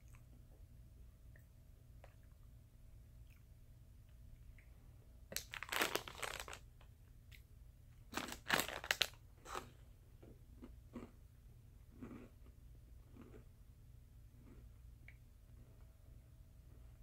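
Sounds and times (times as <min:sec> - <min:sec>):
cookies crunching: 0:05.3 - 0:06.7, 0:08.1 - 0:11.2, 0:11.9 - 0:13.6.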